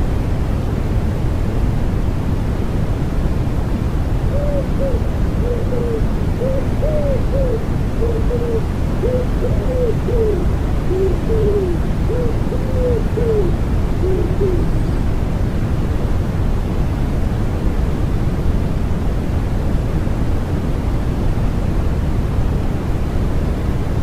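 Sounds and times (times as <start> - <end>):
rain and white noise hiss: 0.0 - 24.0
wood pigeon cooing: 4.3 - 14.9.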